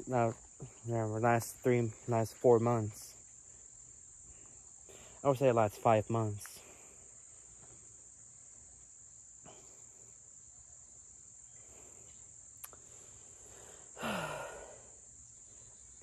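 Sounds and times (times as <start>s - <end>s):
insects chirring: 0.0s - 16.0s
person sighing: 14.0s - 15.0s.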